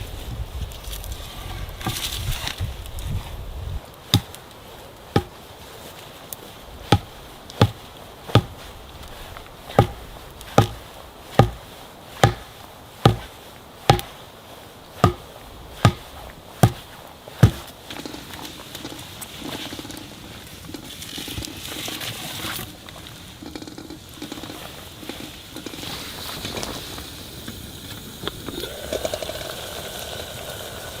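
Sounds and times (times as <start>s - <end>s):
axe chopping wood: 4.1s - 4.4s, 5.1s - 5.4s, 6.9s - 8.7s, 9.7s - 14.2s, 15.0s - 17.8s.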